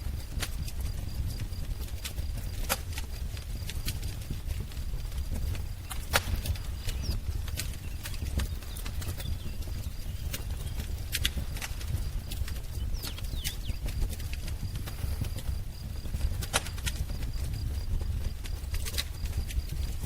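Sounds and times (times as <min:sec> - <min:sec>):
steady low rumble: 0:00.0 - 0:20.0
wood fire crackling and popping: 0:00.0 - 0:20.0
bird chirps: 0:05.8 - 0:10.9, 0:12.7 - 0:13.9.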